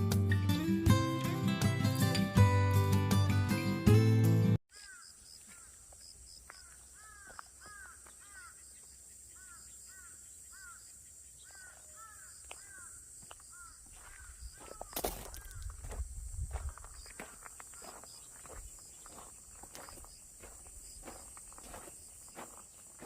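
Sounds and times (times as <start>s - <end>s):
birds calling: 4.7s - 23.0s.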